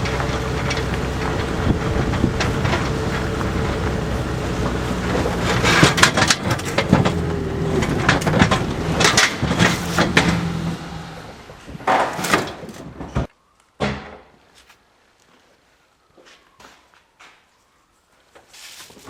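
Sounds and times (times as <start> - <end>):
truck engine running: 0.0 - 11.9.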